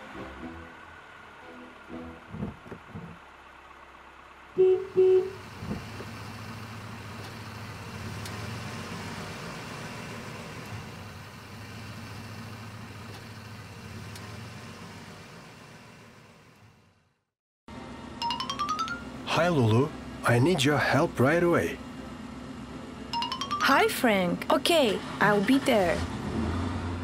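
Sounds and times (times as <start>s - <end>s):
truck engine running: 0.0s - 27.0s
cartoon truck horn beeps: 1.4s - 2.3s, 4.6s - 5.4s, 23.2s - 24.2s.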